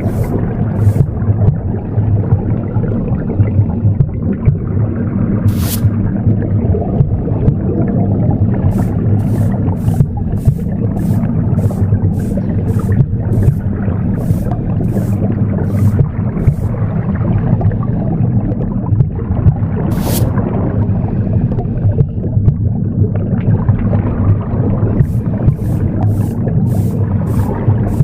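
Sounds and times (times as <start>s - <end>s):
broom sweeping swishes: 0.0s - 1.1s, 5.5s - 5.9s, 8.7s - 16.8s, 19.9s - 20.3s, 25.0s - 28.0s
womb whooshing rumble: 0.0s - 2.4s, 8.7s - 17.0s, 25.0s - 28.0s.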